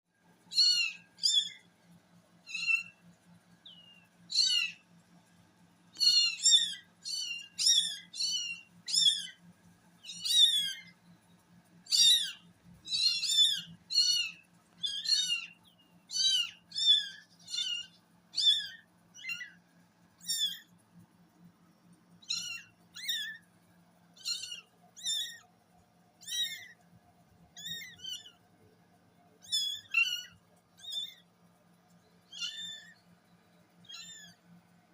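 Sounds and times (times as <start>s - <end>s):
faint low hum: 0.2s - 34.9s
kittens mewing: 26.2s - 26.7s.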